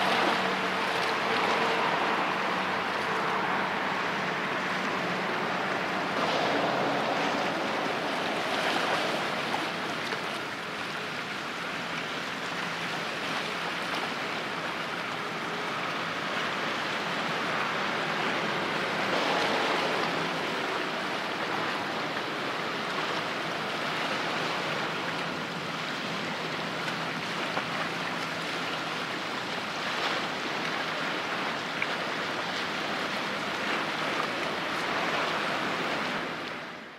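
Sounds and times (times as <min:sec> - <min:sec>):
faint low boat engine hum: 0:00.0 - 0:36.9
sea waves rushing: 0:00.0 - 0:36.9.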